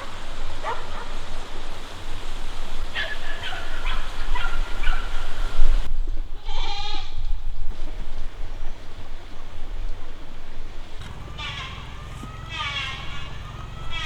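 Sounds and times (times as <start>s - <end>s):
steady low rumble: 10.8s - 14.0s
goats bleating: 11.0s - 14.0s.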